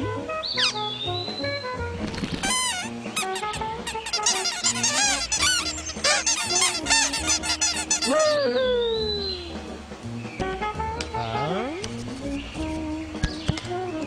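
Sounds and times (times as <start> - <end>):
cartoon birds squawking and chirping: 0.0 - 9.6.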